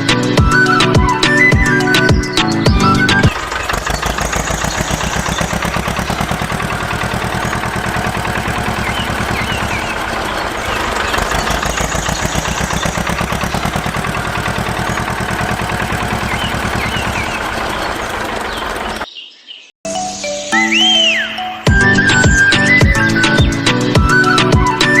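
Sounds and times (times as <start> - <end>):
small engine running: 0.0 - 19.1.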